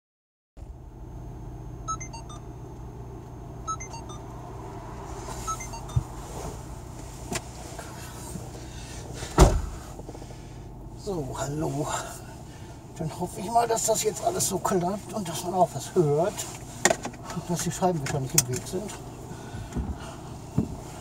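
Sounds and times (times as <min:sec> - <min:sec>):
car engine idling: 0:00.6 - 0:21.0
short high electronic beeps: 0:01.9 - 0:02.4, 0:03.7 - 0:04.3, 0:05.4 - 0:06.0.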